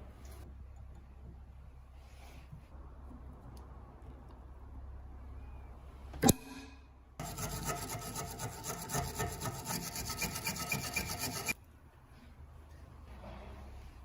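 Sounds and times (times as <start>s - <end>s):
hand scraping rusty metal: 7.2s - 11.6s.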